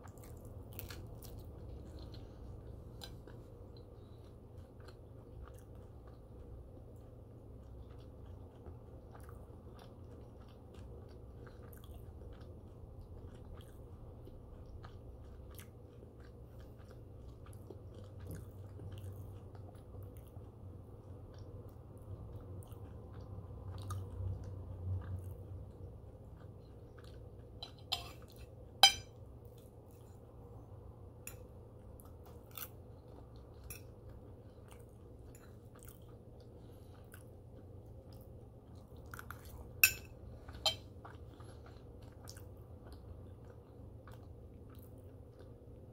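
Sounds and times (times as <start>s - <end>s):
low steady hum: 0.0s - 45.9s
man chewing food: 0.0s - 45.9s.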